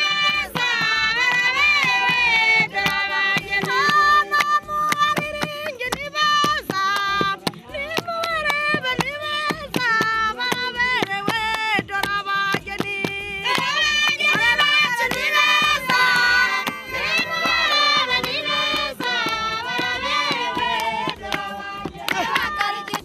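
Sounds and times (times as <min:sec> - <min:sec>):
group of voices singing: 0:00.0 - 0:23.0
hand claps: 0:00.0 - 0:23.0.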